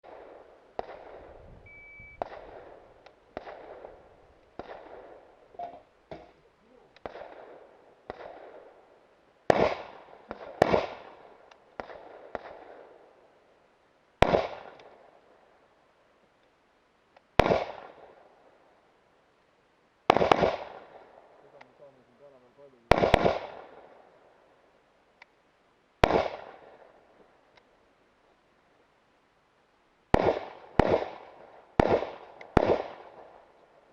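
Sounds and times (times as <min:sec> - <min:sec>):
rifle shots echoing: 0:00.1 - 0:06.2, 0:07.0 - 0:08.9, 0:09.5 - 0:13.0, 0:14.2 - 0:15.1, 0:17.4 - 0:18.2, 0:20.1 - 0:21.4, 0:22.8 - 0:24.1, 0:26.0 - 0:27.0, 0:30.1 - 0:33.5
short beep: 0:01.6 - 0:02.2.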